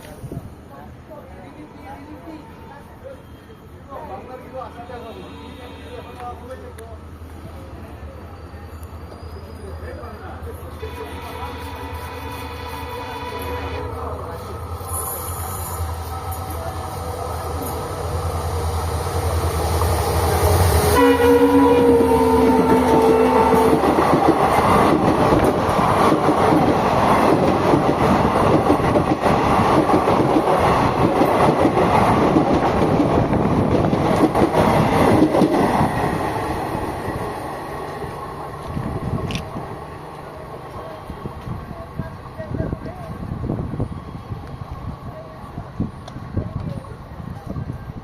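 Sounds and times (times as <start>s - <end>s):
diesel locomotive engine throb: 10.9s - 43.9s
train wheels rumbling and clattering: 13.8s - 48.0s
locomotive horn chord: 20.9s - 23.8s.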